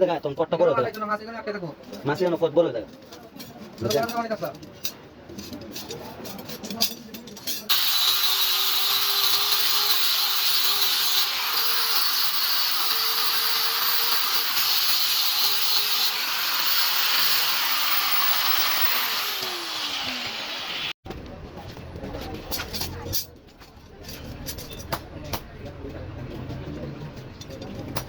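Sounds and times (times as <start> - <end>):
power tool motor running: 7.7 - 21.0.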